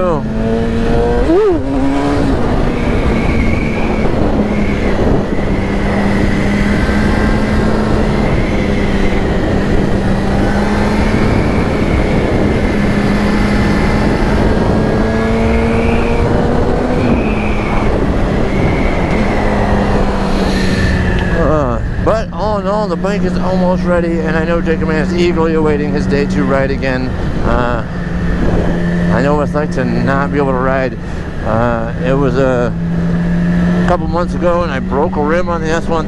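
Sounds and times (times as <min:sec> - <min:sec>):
heavy wind noise: 0:00.0 - 0:36.0
motorcycle engine running: 0:00.0 - 0:36.0
thin high wind whistle: 0:02.7 - 0:05.7, 0:17.0 - 0:19.5.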